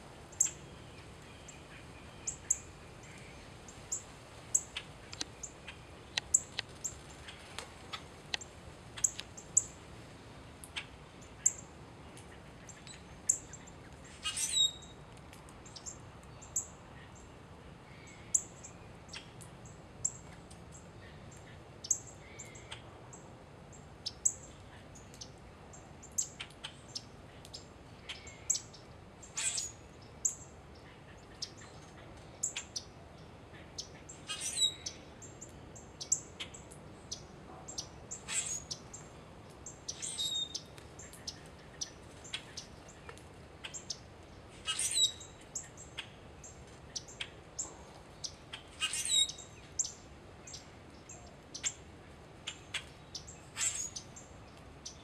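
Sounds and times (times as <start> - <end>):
bird chirps: 0.3 - 9.8, 12.7 - 15.0, 33.7 - 39.1, 39.7 - 44.0, 44.6 - 46.2, 46.9 - 51.8, 52.4 - 55.0.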